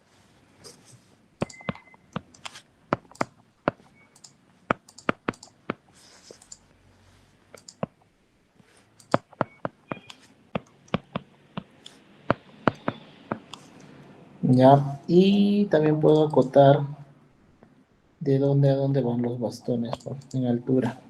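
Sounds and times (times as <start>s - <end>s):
mouse and keyboard clicks: 1.4s - 6.6s, 7.5s - 7.9s, 9.0s - 13.9s.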